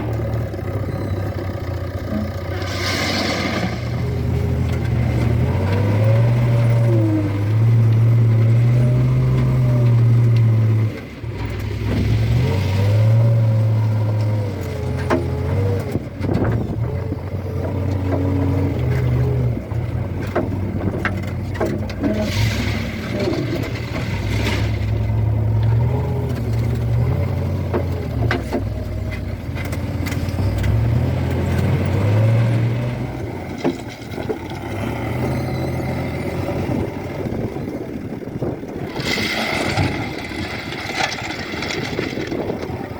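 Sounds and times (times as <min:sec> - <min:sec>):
diesel engine revving: 0:00.0 - 0:42.9
knocks and clatters: 0:39.0 - 0:42.9.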